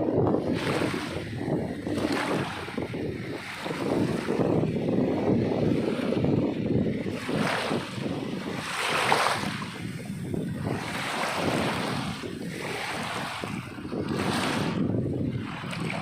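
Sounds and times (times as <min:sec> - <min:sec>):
sea waves washing in: 0:00.0 - 0:16.0
wind rumble on microphone: 0:00.0 - 0:16.0.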